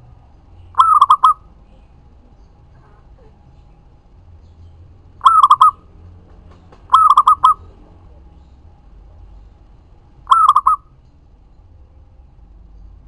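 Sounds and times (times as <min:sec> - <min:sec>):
dove cooing: 0:00.6 - 0:08.5, 0:10.2 - 0:10.9.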